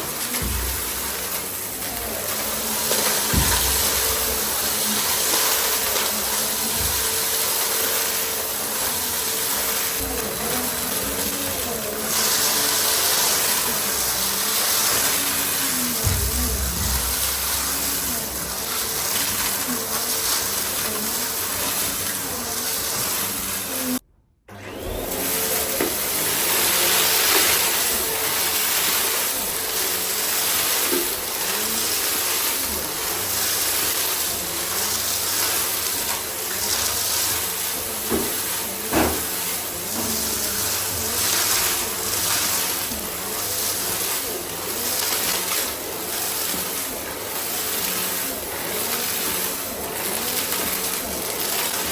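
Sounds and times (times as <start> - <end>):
vacuum cleaner running: 0.0 - 51.9
knock: 16.1 - 18.5.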